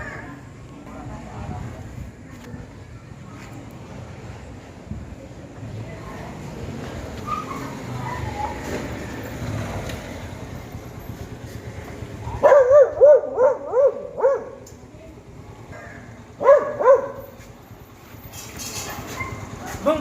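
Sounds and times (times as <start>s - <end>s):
steady background noise: 0.0s - 20.0s
dog barking: 12.3s - 14.6s, 16.4s - 17.3s.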